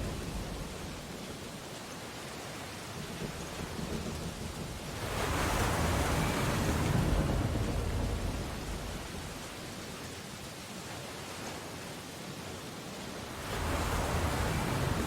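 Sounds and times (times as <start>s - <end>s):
ocean wave crashing on beach: 5.0s - 9.4s, 13.3s - 15.0s.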